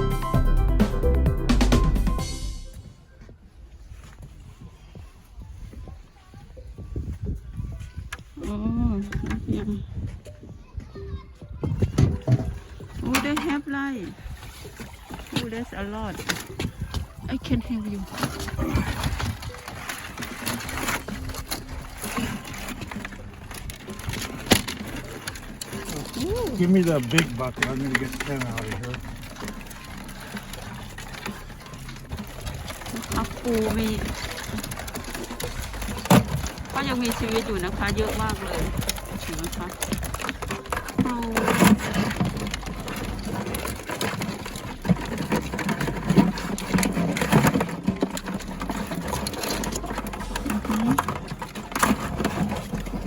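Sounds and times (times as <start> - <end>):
crabs and gear knocking: 11.8 - 53.0.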